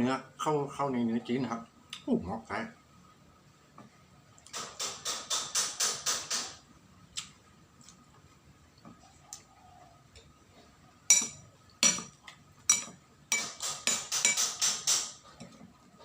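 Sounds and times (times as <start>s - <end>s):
utensils clinking against dishes: 11.1s - 12.1s, 12.7s - 15.6s.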